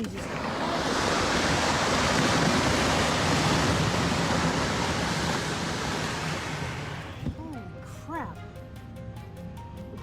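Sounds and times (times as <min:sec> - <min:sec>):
rock slide rushing: 0:00.2 - 0:07.1.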